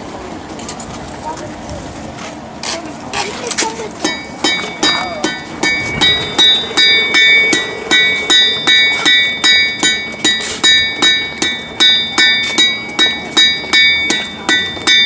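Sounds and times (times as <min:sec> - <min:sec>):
hammer striking anvil: 0:04.0 - 0:15.0
steel ringing: 0:04.0 - 0:15.0.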